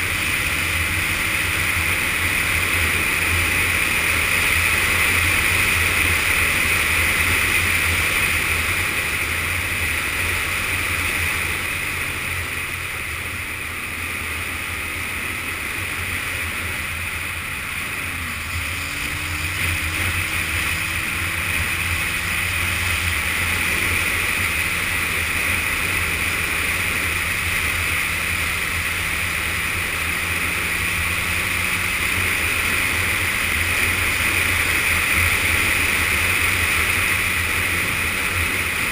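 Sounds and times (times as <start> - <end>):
motorcycle engine under way: 0.0 - 38.9.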